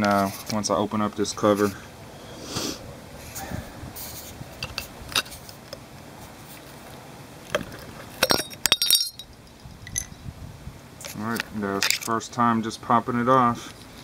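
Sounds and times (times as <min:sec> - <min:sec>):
sharp clinks and rattles: 0:07.5 - 0:10.3, 0:11.8 - 0:12.1.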